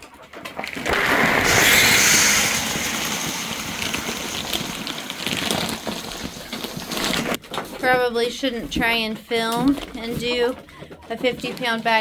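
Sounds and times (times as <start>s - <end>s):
feed pellets pouring: 0.6s - 7.4s.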